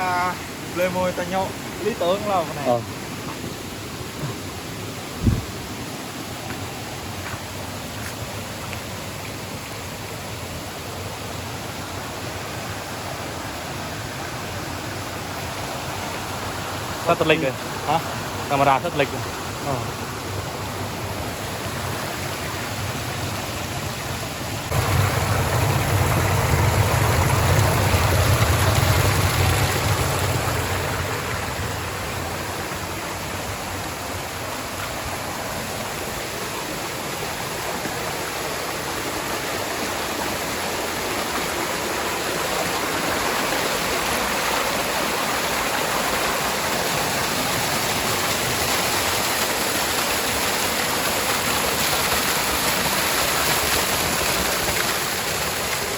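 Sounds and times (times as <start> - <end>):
rushing water: 0.0 - 55.9
deep rumble: 24.7 - 32.3.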